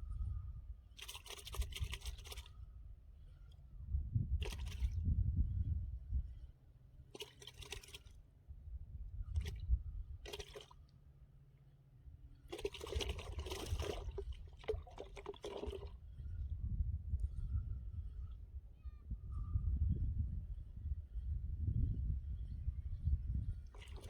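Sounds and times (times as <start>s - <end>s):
water splashing and sloshing: 1.0s - 2.5s, 4.4s - 5.0s, 7.1s - 8.2s, 10.2s - 10.9s, 12.4s - 16.0s, 23.6s - 24.0s.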